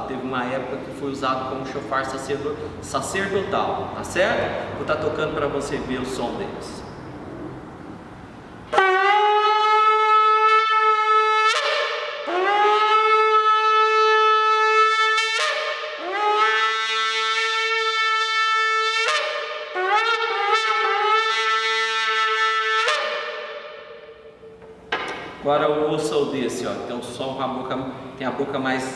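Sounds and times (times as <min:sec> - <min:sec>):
shofar blasts: 0:08.7 - 0:24.7.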